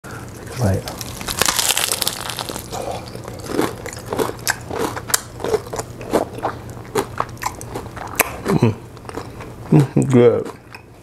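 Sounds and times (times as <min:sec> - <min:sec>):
crispy crust crackling: 0:00.3 - 0:09.1
chewing: 0:00.9 - 0:10.8.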